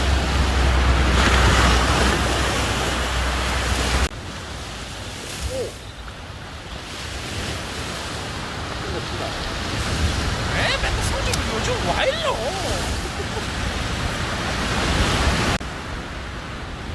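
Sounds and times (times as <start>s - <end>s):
sea surf washing on shore: 0.0s - 16.9s
wind buffeting microphone: 0.0s - 16.9s.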